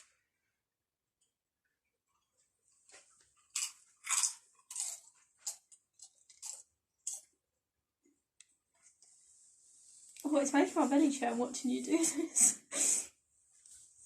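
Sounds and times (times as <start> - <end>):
person chewing crisps: 2.1 - 7.5.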